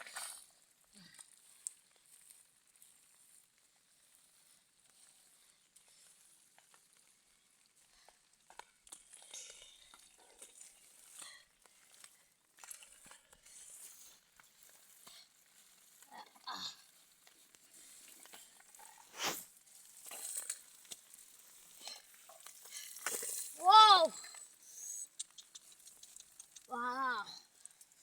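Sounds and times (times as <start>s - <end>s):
hands digging through mud: 18.0s - 23.6s.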